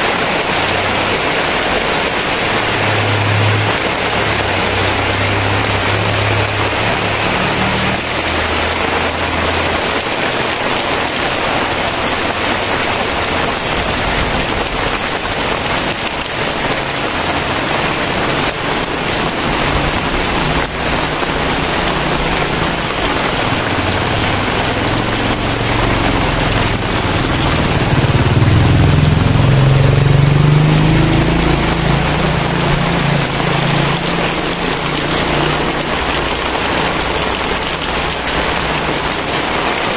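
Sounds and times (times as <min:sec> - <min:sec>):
heavy rain pouring: 0:00.0 - 0:39.9
low rumble: 0:17.4 - 0:30.3.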